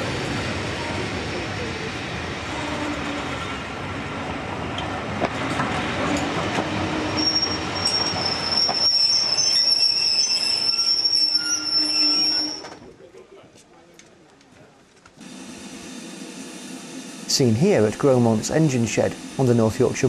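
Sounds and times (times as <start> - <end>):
steam train wheels rumbling: 0.0 - 12.8
metallic wheel squeal: 6.9 - 12.8.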